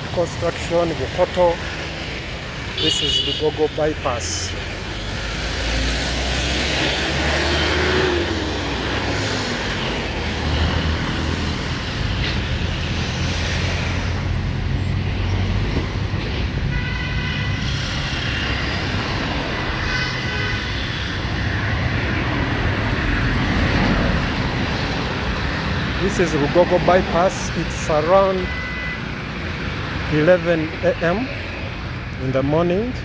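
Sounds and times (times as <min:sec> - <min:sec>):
road traffic rumble: 0:00.0 - 0:33.0
vehicle horn: 0:02.8 - 0:03.6, 0:16.7 - 0:17.9, 0:19.8 - 0:21.0, 0:28.3 - 0:29.2.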